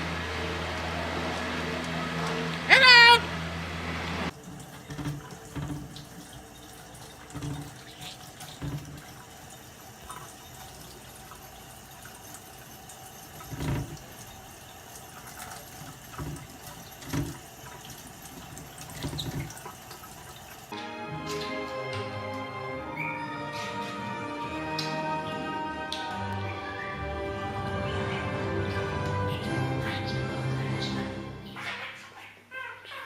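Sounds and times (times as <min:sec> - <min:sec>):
water running into a sink: 0:04.3 - 0:20.8.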